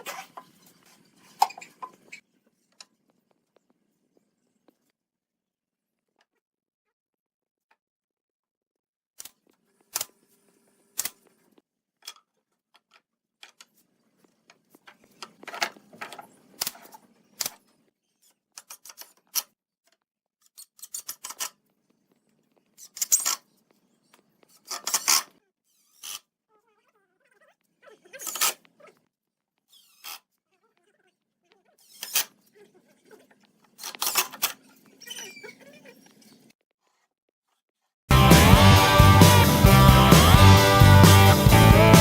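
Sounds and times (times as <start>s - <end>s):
tools clicking and knocking on wood: 12.0s - 13.8s.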